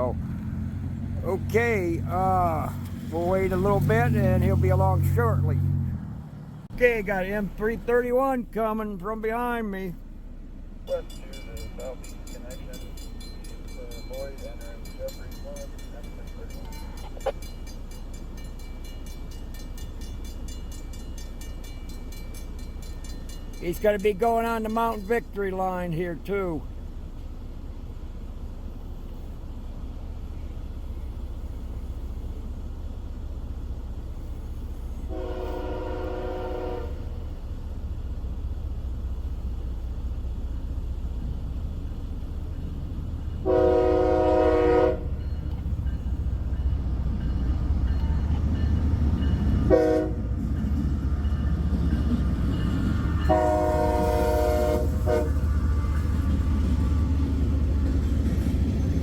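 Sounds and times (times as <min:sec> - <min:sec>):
locomotive rumble: 0:00.0 - 0:59.0
locomotive horn blasts: 0:35.1 - 0:37.2, 0:43.4 - 0:45.2, 0:49.4 - 0:50.3, 0:53.2 - 0:57.0.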